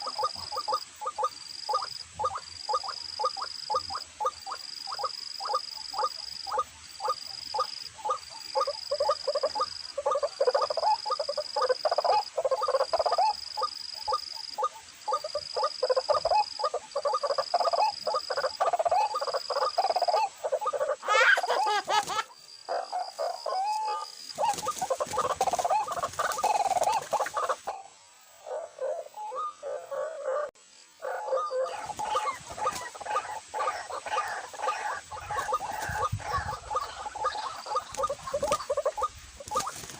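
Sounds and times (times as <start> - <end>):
waterhen croaking calls: 0.0 - 39.9.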